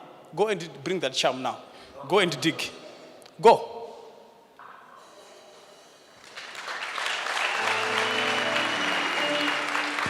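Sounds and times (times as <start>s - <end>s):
congregation applauding: 6.2s - 10.0s.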